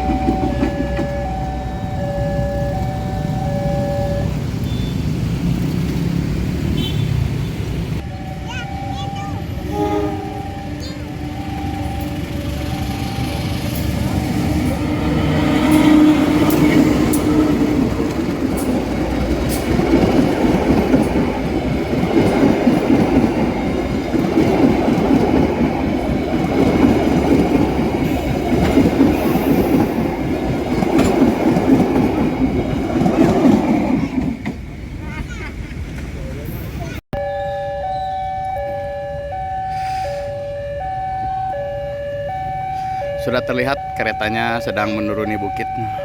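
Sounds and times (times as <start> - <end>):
train engine tone: 0.0 - 6.2, 8.0 - 46.0
train wheels rumbling on rails: 0.0 - 6.8, 8.7 - 37.0.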